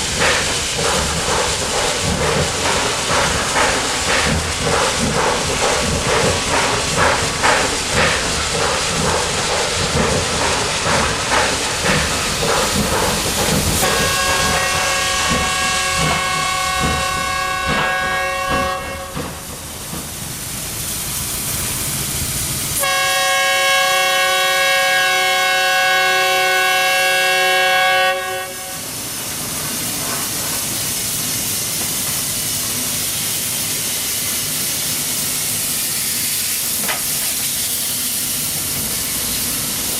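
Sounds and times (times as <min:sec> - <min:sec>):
steam hissing: 0:00.0 - 0:39.9
steam locomotive exhaust beats: 0:00.0 - 0:39.9
steam whistle chord: 0:22.8 - 0:28.8.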